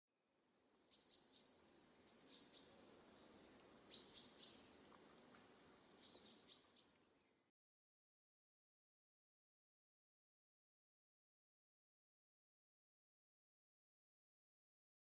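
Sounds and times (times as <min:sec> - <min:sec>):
bird chirping: 0:00.7 - 0:07.1
faint hiss: 0:00.8 - 0:07.5.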